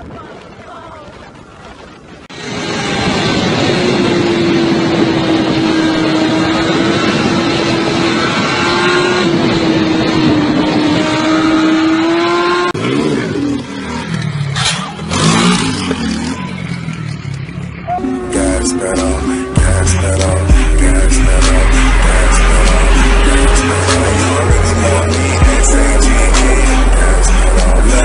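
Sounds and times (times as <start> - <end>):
engine bursts: 2.3 - 28.0
motorcycle engine revving: 2.4 - 28.0.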